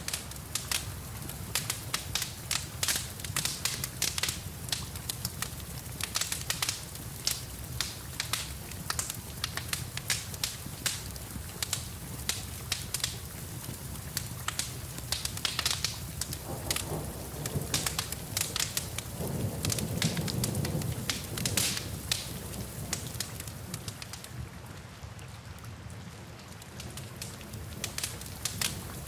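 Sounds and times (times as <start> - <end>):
wood fire crackling and popping: 0.0 - 24.3, 26.4 - 29.0
rain hissing: 0.0 - 24.5, 26.8 - 29.0.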